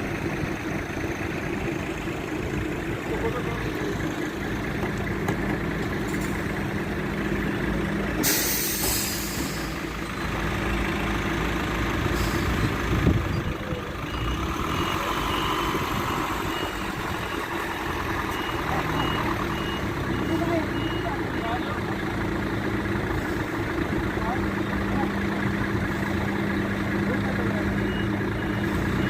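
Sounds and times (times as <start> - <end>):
truck engine running: 0.0 - 29.0
air release hiss: 8.2 - 9.7
reversing alarm beeping: 13.3 - 21.8, 27.8 - 29.0.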